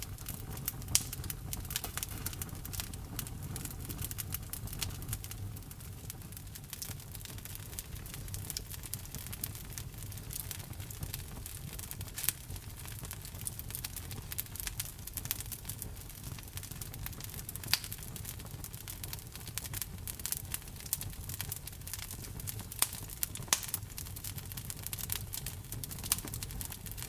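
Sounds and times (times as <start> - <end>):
logs crackling in fire: 0.0 - 27.0
loud fire pops: 0.0 - 27.0.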